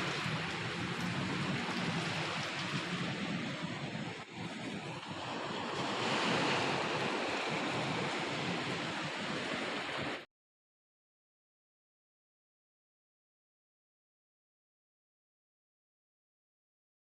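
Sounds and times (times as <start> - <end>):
strong wind gusts: 0.0 - 10.3.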